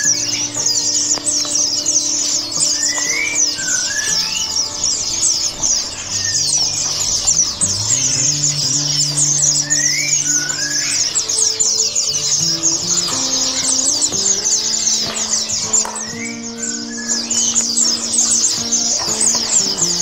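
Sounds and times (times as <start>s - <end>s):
high-pitched bird chirps: 0.0s - 20.0s
music with held low notes: 0.0s - 20.0s
rising whistled bird call: 0.0s - 20.0s.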